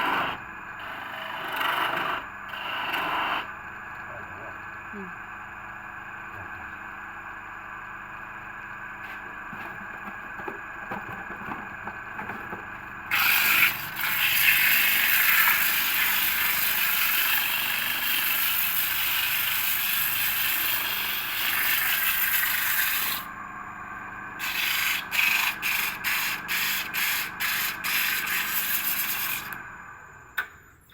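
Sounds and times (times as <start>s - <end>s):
tool scraping spinning workpiece: 0.0s - 3.5s, 13.1s - 23.3s, 24.4s - 29.6s
lathe motor humming: 0.1s - 10.7s, 13.0s - 23.3s, 24.1s - 30.2s.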